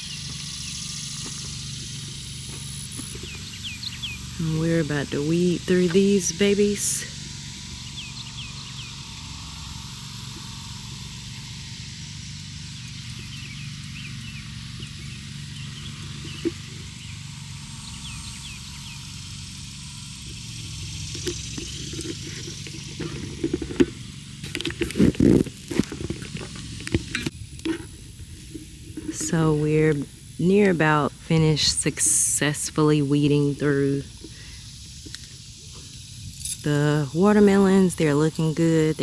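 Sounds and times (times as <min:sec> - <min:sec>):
faint bird chirps: 0:03.0 - 0:04.4
weeds rustling as pulled by hand: 0:19.0 - 0:32.8.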